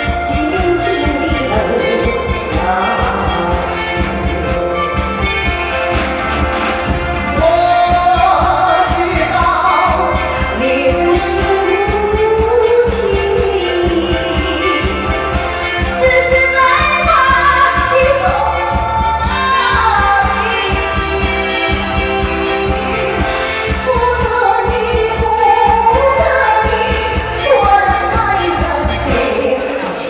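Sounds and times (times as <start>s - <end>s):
woman singing slow pop song: 0.0s - 6.0s, 7.3s - 30.0s
band with steady bass beat: 0.0s - 30.0s.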